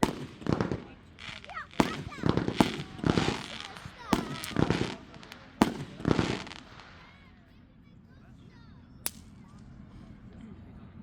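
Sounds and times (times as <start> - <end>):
fireworks banging: 0.0 - 7.2
sharp firework crack: 0.0 - 7.2.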